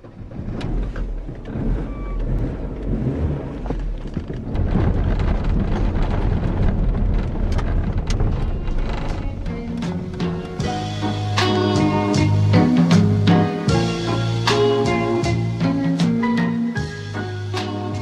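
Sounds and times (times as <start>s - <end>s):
wind buffeting: 0.0s - 12.5s
road rumble: 0.0s - 18.0s.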